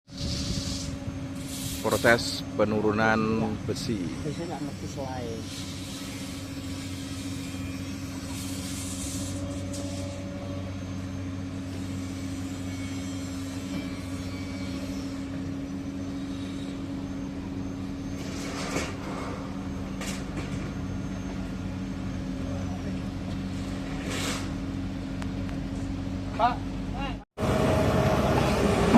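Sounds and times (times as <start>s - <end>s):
heavy machine engine running: 0.1s - 28.9s
short hydraulic hisses: 23.6s - 24.6s.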